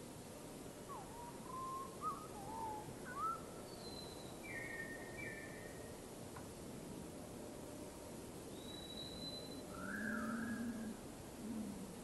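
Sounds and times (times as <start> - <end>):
steady background hiss: 0.0 - 12.0
songbird whistling: 0.9 - 5.7, 8.6 - 10.7.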